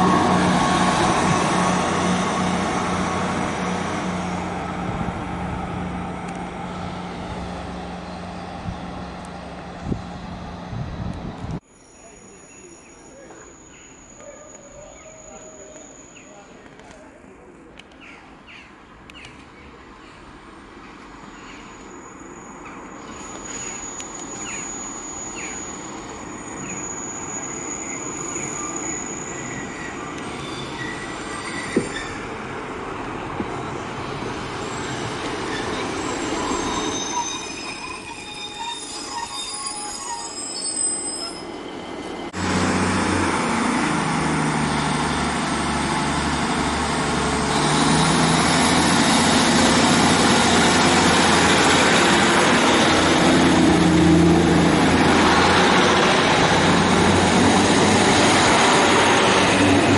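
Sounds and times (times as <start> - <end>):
diesel train engines: 0.0 - 59.9
train wheels and brakes squealing: 11.6 - 16.6, 21.2 - 32.5, 33.6 - 42.4.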